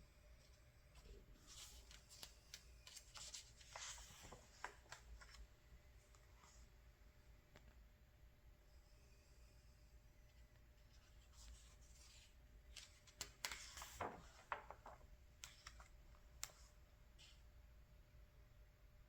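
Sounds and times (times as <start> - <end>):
paper rustling: 1.0 - 5.5, 10.9 - 17.4
paper crackles and snaps: 12.7 - 16.6.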